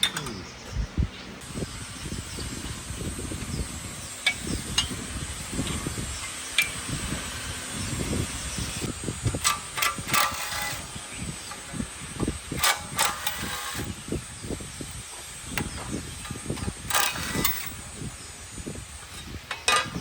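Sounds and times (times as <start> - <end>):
tool scraping metal: 9.3 - 11.7, 12.5 - 13.9, 15.6 - 18.0, 19.0 - 20.0.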